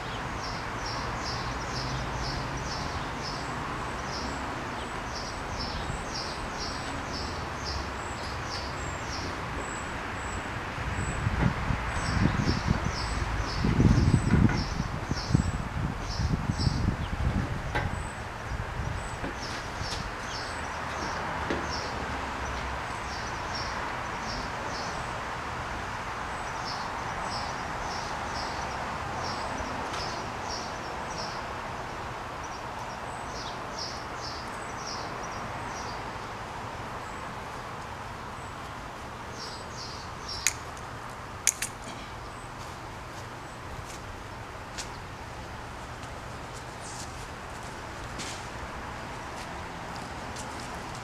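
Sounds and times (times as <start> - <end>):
sharp clicks: 40.4 - 41.8.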